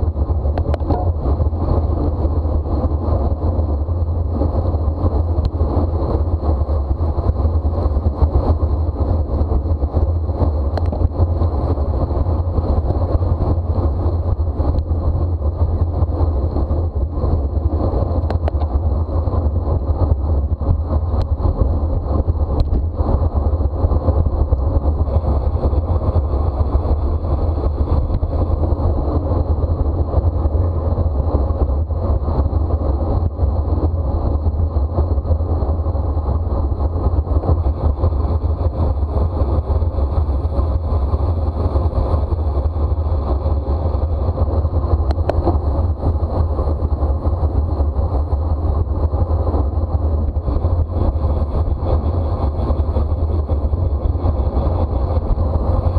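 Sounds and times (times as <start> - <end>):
wind buffeting the microphone: 0.0 - 55.9.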